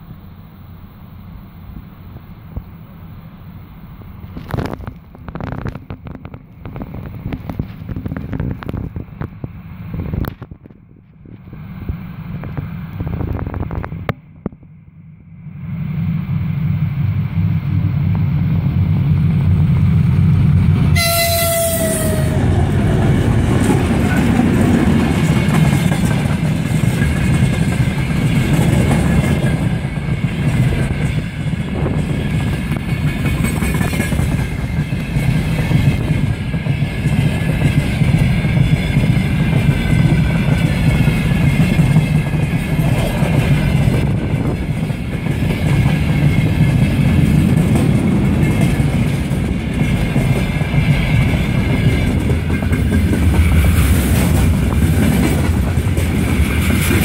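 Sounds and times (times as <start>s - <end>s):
diesel locomotive rumble: 0.0s - 57.0s
train horn blast: 20.9s - 22.5s
wheels clattering over rail joints: 21.6s - 57.0s.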